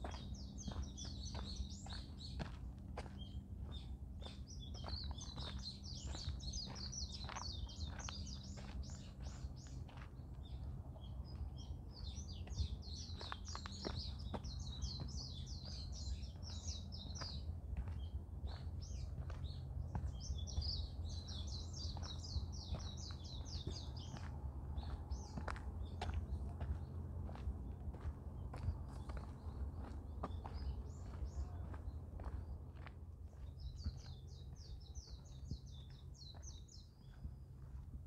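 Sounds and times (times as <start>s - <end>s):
songbird twittering: 0.0s - 27.4s
footsteps on a forest path: 0.0s - 38.0s.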